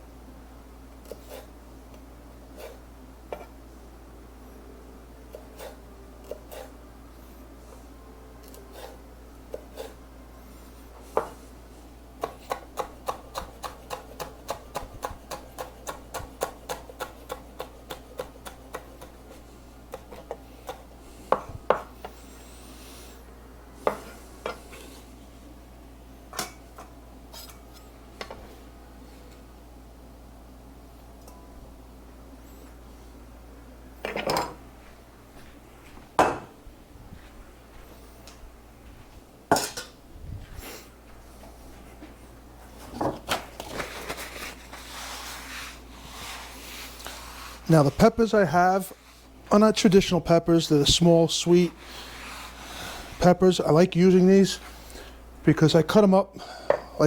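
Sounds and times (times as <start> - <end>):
knife chopping on cutting board: 12.2 - 21.9.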